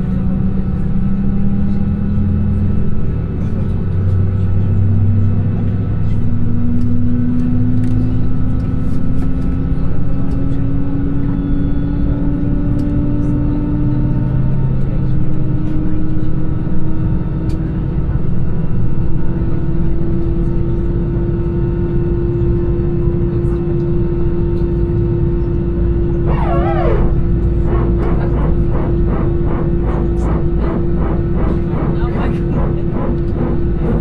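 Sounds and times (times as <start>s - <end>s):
jet engine whine: 0.0s - 34.0s
airplane cabin rumble: 26.2s - 34.0s.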